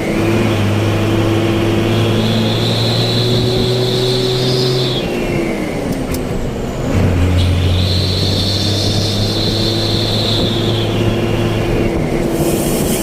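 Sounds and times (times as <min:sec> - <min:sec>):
motorcycle engine running: 0:01.1 - 0:13.0.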